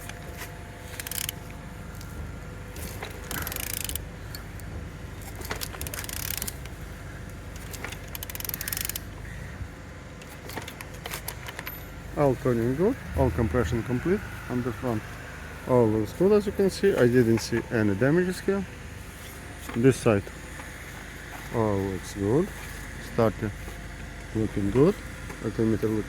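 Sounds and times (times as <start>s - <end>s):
ratchet wrench clicks: 0.9s - 1.5s, 2.8s - 6.8s, 7.5s - 9.2s
rushing noise of engine compression: 2.7s - 4.4s, 11.2s - 16.8s.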